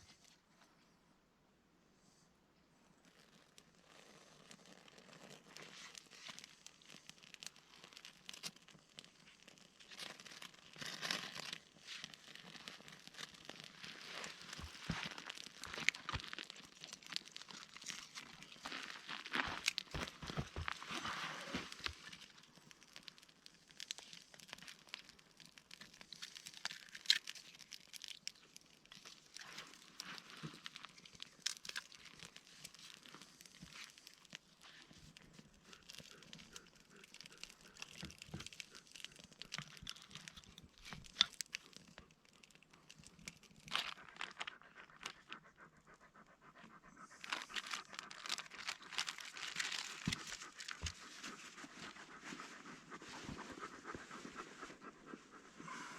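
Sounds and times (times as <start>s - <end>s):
light crackles and rustling: 2.9s - 45.4s, 47.1s - 54.8s
dog panting: 43.9s - 55.9s.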